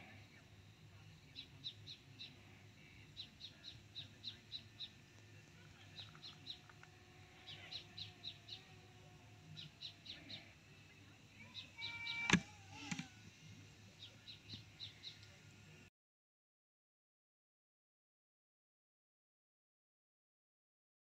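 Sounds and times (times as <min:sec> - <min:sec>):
birds chirping: 0:00.0 - 0:15.8.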